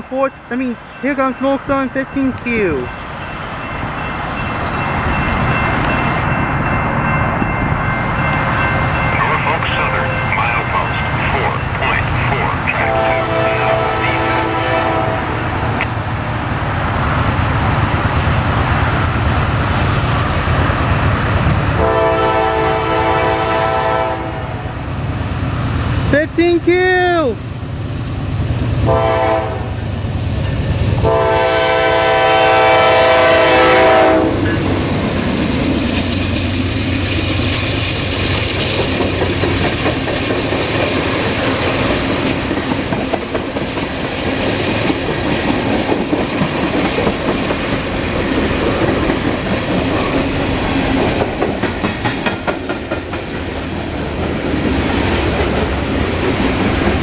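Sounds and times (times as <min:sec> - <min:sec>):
locomotive air horn: 0:12.8 - 0:15.4, 0:21.8 - 0:24.6, 0:28.8 - 0:29.8, 0:31.0 - 0:34.6
freight cars rolling on rails: 0:27.3 - 0:57.0.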